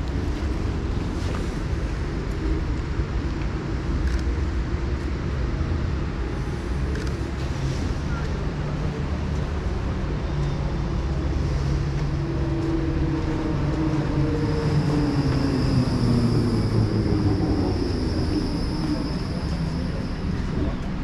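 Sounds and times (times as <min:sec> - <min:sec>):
train rumble: 0:00.0 - 0:21.0
high steady whine or squeal: 0:12.2 - 0:21.0.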